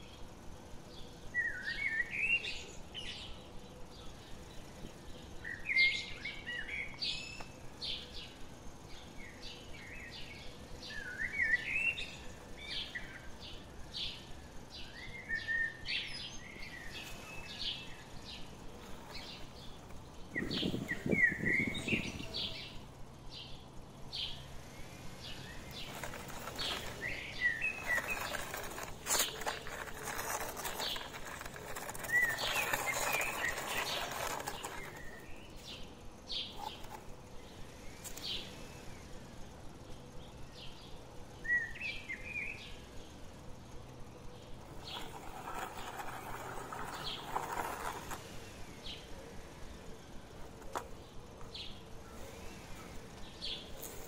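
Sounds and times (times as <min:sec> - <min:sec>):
small birds chirping: 0:00.0 - 0:54.0
rustling noise: 0:25.7 - 0:35.7, 0:44.6 - 0:48.5.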